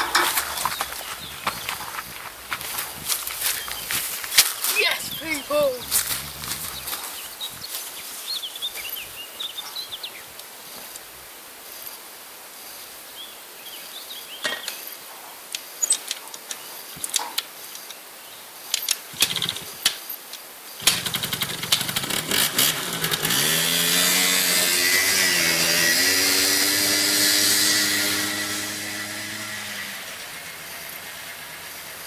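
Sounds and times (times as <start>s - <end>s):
quad bike engine starting: 5.1s - 7.7s, 19.2s - 19.9s, 20.8s - 32.0s.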